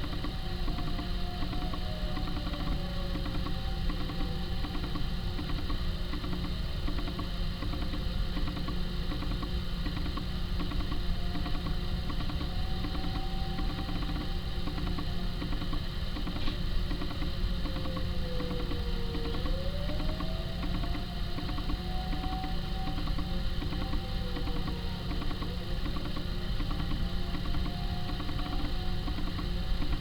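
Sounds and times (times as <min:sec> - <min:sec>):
faint warning siren: 0:00.0 - 0:08.6, 0:10.7 - 0:30.0.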